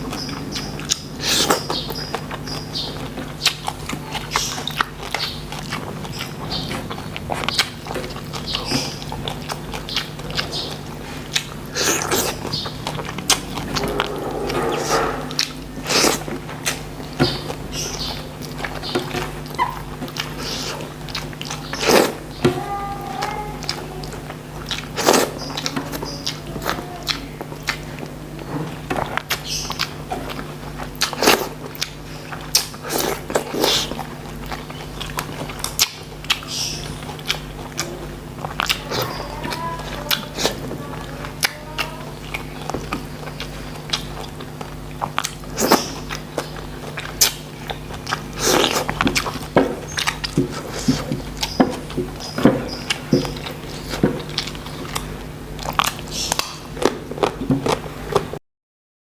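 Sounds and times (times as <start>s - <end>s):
person chewing: 0.0s - 58.4s
steady low hum: 0.0s - 58.4s
mouth smacking clicks: 41.4s - 58.3s.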